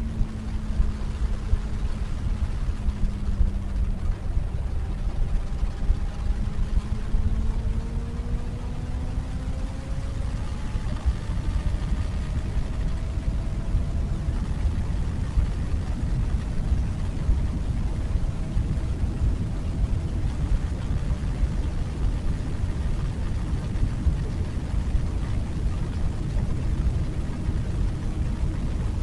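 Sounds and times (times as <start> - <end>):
motorcycle engine: 0.0 - 17.5
wind buffeting microphone: 0.0 - 29.0.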